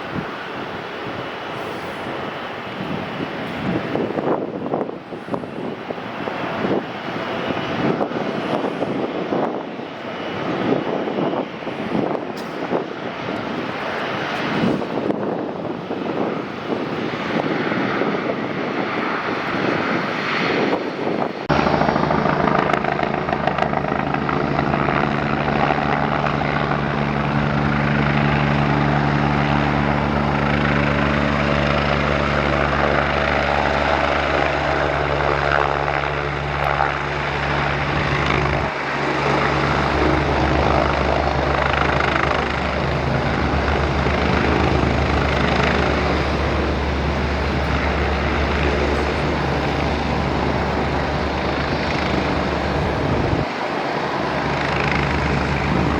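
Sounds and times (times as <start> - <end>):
aircraft engines roaring: 0.0 - 55.9.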